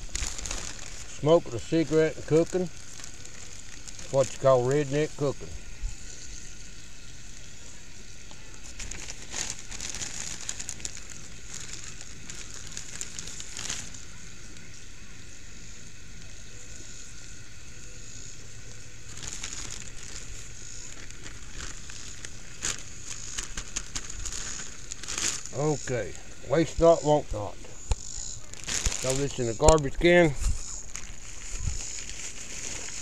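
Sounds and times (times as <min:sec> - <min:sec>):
plastic bag crinkling: 0:00.0 - 0:05.3, 0:08.6 - 0:14.5, 0:18.9 - 0:26.8, 0:27.7 - 0:33.0.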